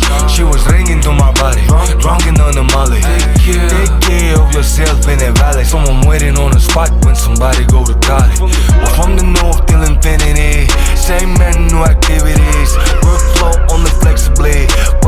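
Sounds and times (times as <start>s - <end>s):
punchy kick drums: 0.0s - 2.6s, 5.4s - 10.1s, 11.4s - 13.4s
heavy sub-bass: 0.0s - 15.0s
hip-hop over car audio: 0.0s - 15.0s.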